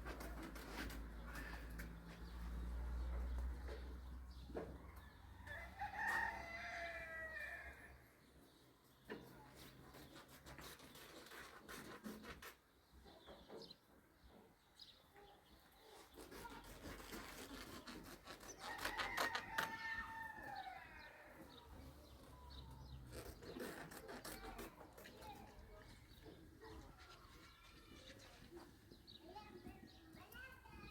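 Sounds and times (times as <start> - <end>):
rooster crowing: 5.1 - 7.9, 18.6 - 21.4.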